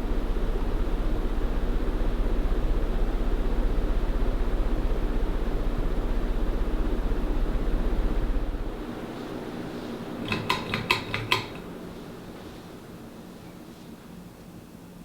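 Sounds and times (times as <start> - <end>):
ceiling fan motor humming: 0.0 - 15.0.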